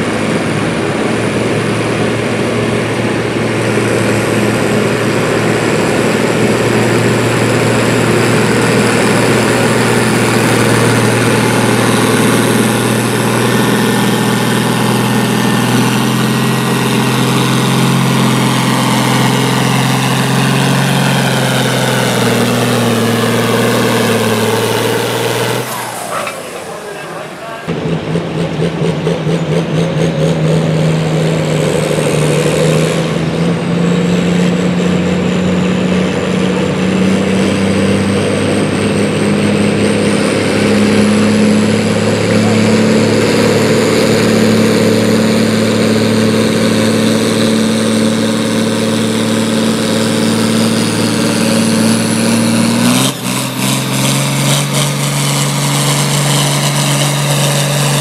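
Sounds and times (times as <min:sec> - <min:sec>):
vehicle engine working under load: 0:00.0 - 0:58.0.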